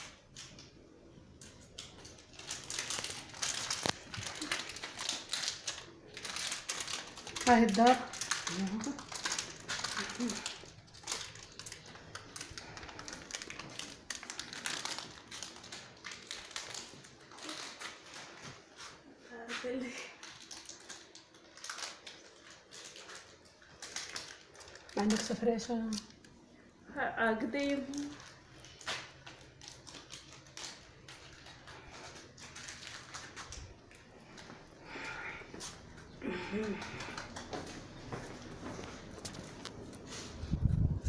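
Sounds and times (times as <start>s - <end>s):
crinkling: 0.0s - 41.0s.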